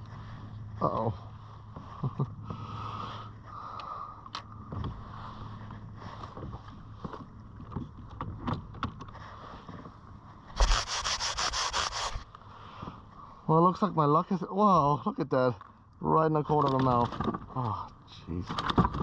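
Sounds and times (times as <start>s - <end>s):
rapid rattling strokes: 10.6s - 12.2s.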